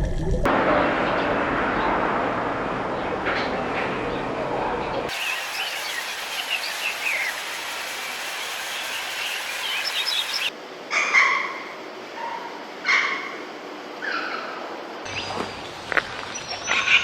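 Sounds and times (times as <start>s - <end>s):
steady outdoor hiss: 0.5s - 17.0s
small birds chirping: 5.1s - 10.5s, 15.1s - 17.0s.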